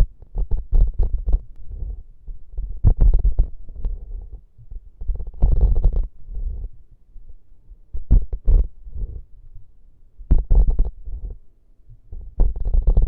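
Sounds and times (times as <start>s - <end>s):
taps and knocks on microphone: 2.8s - 3.5s, 8.0s - 8.6s, 10.3s - 11.0s, 12.1s - 13.0s
rubbing or scratching: 5.0s - 6.7s, 10.3s - 11.4s, 12.1s - 13.0s.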